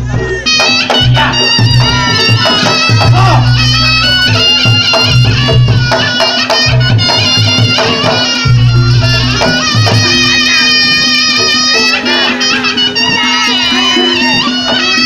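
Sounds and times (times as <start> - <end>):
shrill reedy shawm melody: 0.0 - 15.0.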